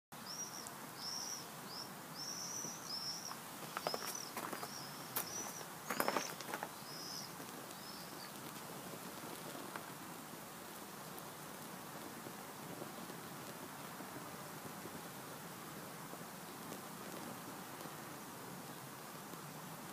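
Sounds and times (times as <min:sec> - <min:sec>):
bird chirping: 0:00.2 - 0:08.5.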